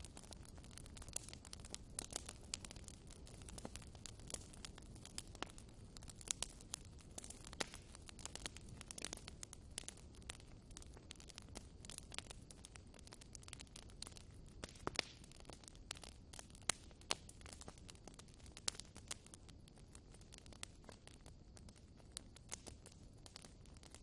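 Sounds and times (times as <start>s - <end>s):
fire popping and snapping: 0.0s - 24.0s
low rumble of burning: 0.0s - 24.0s
wood fire crackling: 0.0s - 24.0s.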